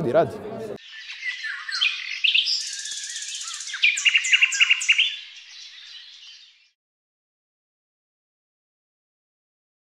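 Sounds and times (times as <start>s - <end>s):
birdsong chirps and trills: 0.8s - 6.8s.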